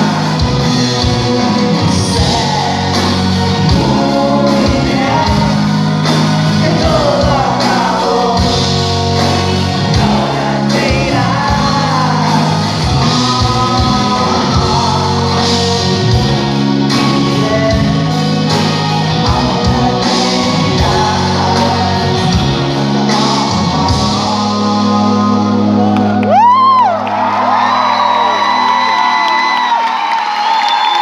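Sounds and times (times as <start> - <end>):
person singing: 0.0 - 27.0
drums: 0.0 - 31.0
live rock band playing: 0.0 - 31.0
audience whooping and cheering: 25.6 - 31.0.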